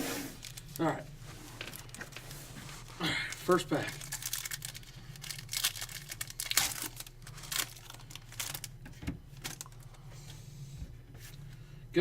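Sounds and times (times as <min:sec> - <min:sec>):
wrapper being torn and crinkled: 0:00.4 - 0:00.9, 0:01.7 - 0:09.8.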